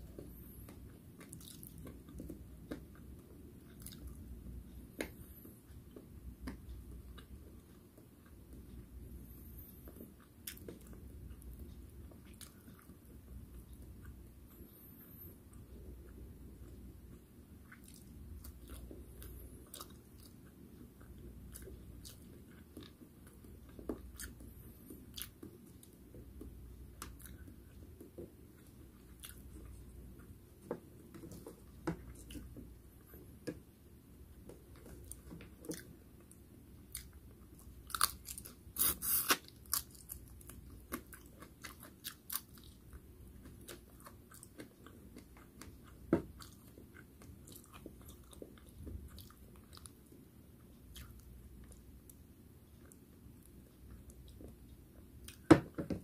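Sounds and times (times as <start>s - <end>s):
person chewing and mouth sounds: 0.0s - 55.5s
crunching of fried food: 36.9s - 50.0s.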